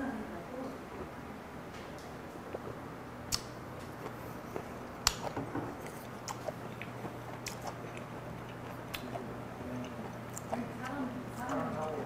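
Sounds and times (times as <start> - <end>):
sharp mouth clicks: 3.3 - 4.2, 5.0 - 5.4, 6.2 - 9.2
wet mouth clicks while chewing: 3.3 - 9.2, 9.8 - 12.0.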